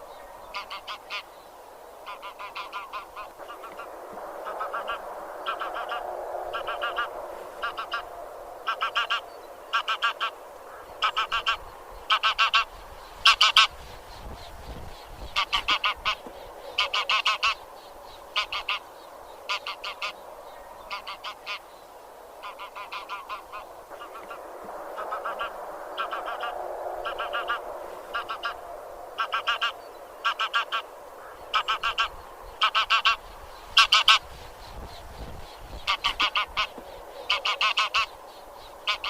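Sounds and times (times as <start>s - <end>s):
geese honking: 0.5s - 1.3s, 2.0s - 13.8s, 15.3s - 17.6s, 18.3s - 18.8s, 19.5s - 20.2s, 20.9s - 21.6s, 22.4s - 28.6s, 29.2s - 34.3s, 35.8s - 38.1s.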